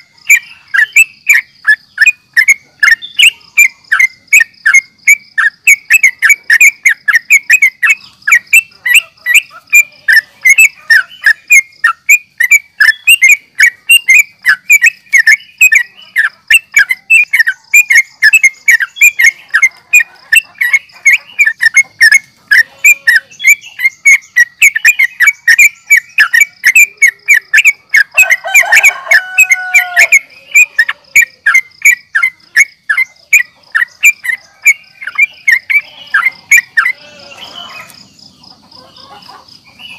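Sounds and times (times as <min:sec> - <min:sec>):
bird chattering chirps: 0:00.0 - 0:39.9.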